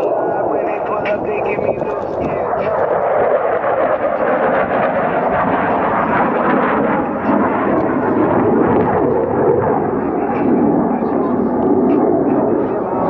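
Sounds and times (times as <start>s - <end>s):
jet engine roar: 0.0s - 13.0s.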